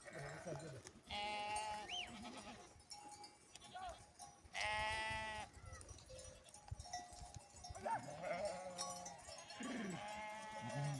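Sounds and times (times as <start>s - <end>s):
animals bleating: 0.0s - 2.7s, 8.1s - 10.9s.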